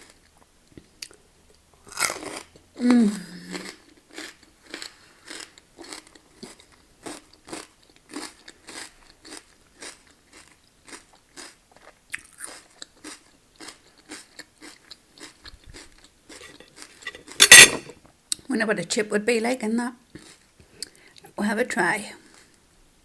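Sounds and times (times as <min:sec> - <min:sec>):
crunching tortilla chips: 0:01.8 - 0:02.6, 0:03.4 - 0:17.4.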